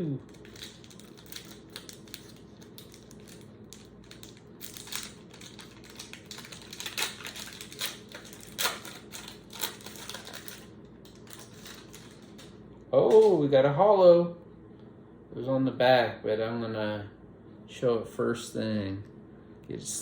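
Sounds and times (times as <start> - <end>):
card pack wrapper tearing: 0.3 - 12.5
wrapper crinkling: 0.3 - 12.6.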